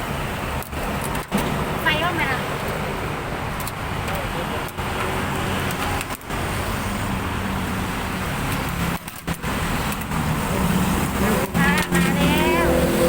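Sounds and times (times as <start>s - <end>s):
loud background noise with hum: 0.0s - 13.0s
person speaking: 11.2s - 13.0s.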